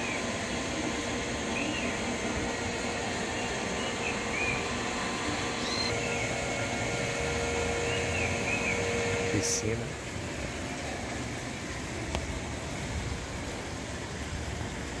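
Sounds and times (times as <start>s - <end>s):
low steady hum: 0.0s - 15.0s
outdoor background noise: 0.0s - 15.0s
small birds chirping faintly: 1.0s - 6.7s.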